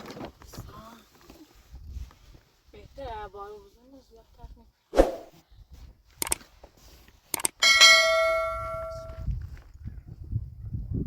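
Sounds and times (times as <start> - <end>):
short clicks: 6.2 - 6.4, 7.3 - 7.6
metallic ring: 7.6 - 9.2.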